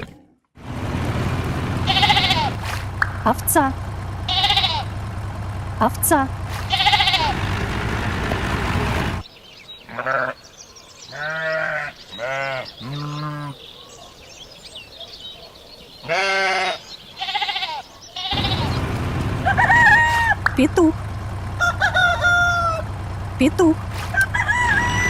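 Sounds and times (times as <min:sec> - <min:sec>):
sheep bleating: 0:01.8 - 0:02.6, 0:04.2 - 0:05.0, 0:06.5 - 0:07.4, 0:09.9 - 0:10.4, 0:11.1 - 0:13.6, 0:16.0 - 0:18.8.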